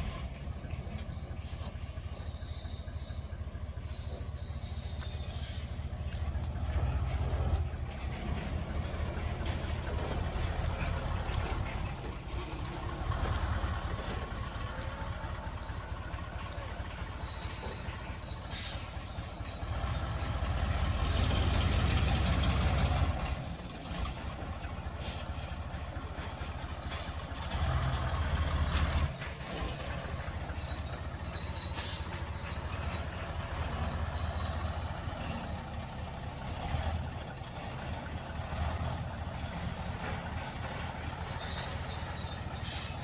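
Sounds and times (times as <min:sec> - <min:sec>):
truck engine revving: 0:00.0 - 0:43.0
air brake hisses: 0:05.3 - 0:05.8, 0:18.4 - 0:19.0, 0:31.7 - 0:32.3, 0:42.6 - 0:43.0.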